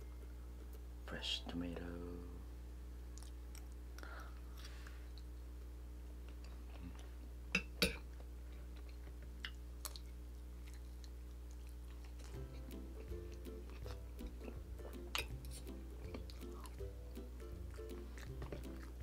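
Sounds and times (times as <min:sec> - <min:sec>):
person chewing food: 0:03.1 - 0:05.4, 0:08.0 - 0:19.0.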